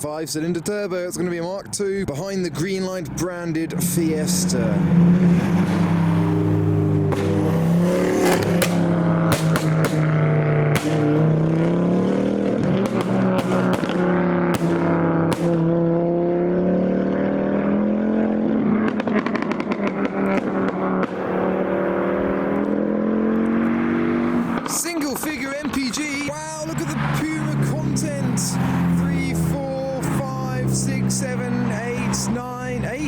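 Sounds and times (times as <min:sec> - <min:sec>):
car engines droning at low revs: 0:00.0 - 0:33.0
exhaust pops and cracks: 0:08.2 - 0:11.2, 0:12.7 - 0:15.7, 0:18.8 - 0:21.3.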